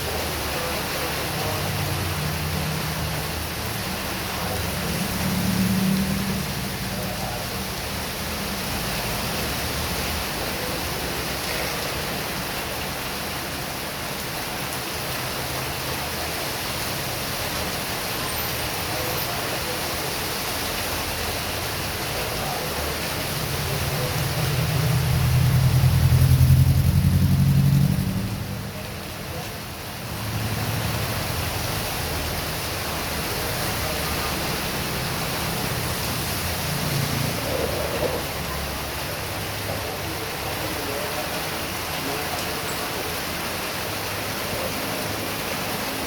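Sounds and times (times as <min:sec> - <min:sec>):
heavy rain: 0:00.0 - 0:46.0
vehicle passing on wet road: 0:00.0 - 0:46.0.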